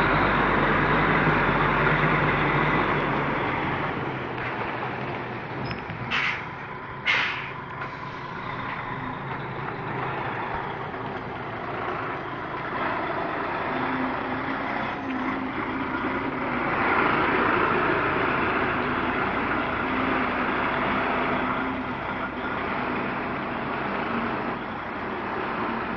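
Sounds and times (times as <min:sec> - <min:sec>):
truck diesel engine running: 0:00.0 - 0:25.9.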